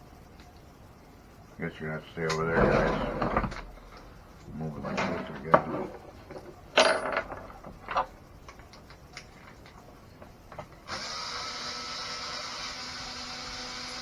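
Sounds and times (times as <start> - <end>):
small motor whirring: 10.9 - 14.0.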